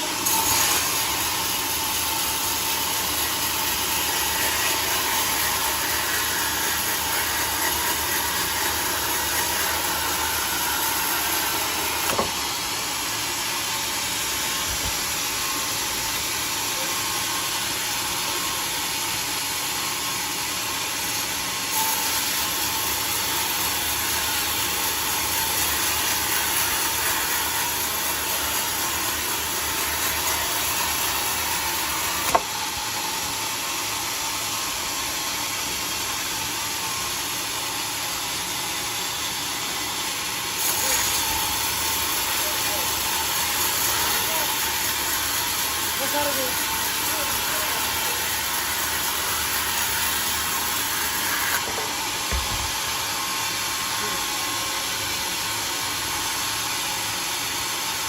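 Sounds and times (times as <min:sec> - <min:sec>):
band sawmill running: 0:00.0 - 0:58.0
brief knock: 0:12.1 - 0:12.4, 0:32.3 - 0:32.5, 0:51.7 - 0:52.7.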